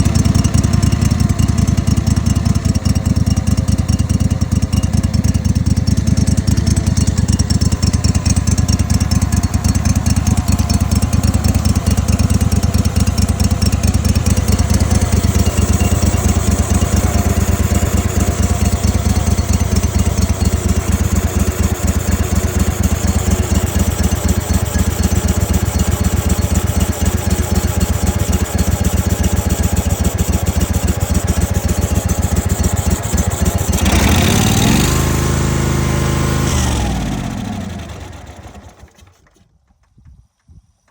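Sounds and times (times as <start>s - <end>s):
engine idling: 0.0s - 39.5s.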